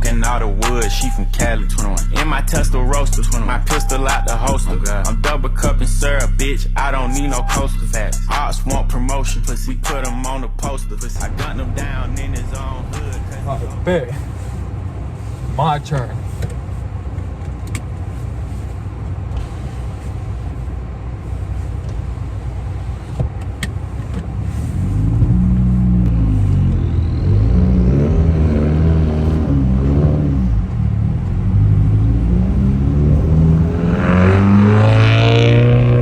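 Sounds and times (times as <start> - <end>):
car engine revving: 0.0 - 14.6, 24.0 - 36.0.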